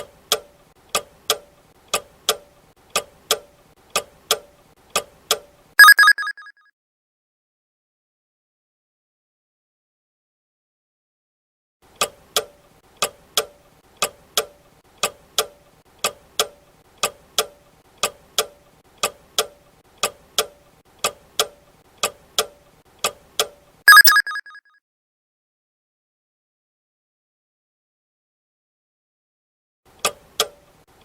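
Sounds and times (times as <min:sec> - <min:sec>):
clock ticking: 0:00.0 - 0:06.4.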